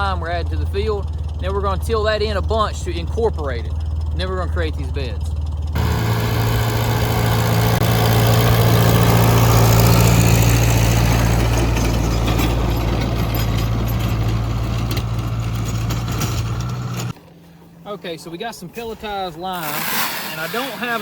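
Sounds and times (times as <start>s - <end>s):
tractor engine running: 0.0s - 17.2s
tiller tines clattering: 5.8s - 17.2s, 19.6s - 21.0s.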